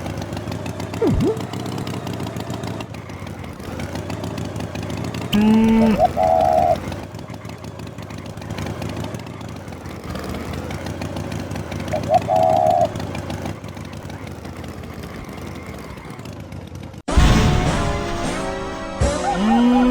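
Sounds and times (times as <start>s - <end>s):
engine-like rumble: 0.0s - 19.9s
short wavering call: 1.0s - 1.4s, 5.4s - 6.8s
music: 17.1s - 19.9s.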